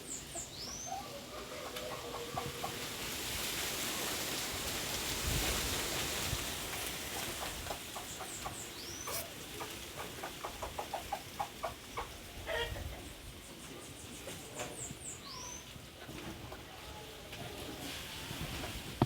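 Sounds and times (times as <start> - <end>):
small birds chirping: 0.0 - 1.4, 7.2 - 12.2, 12.9 - 16.1
fowl clucking: 0.9 - 2.9, 7.0 - 13.2.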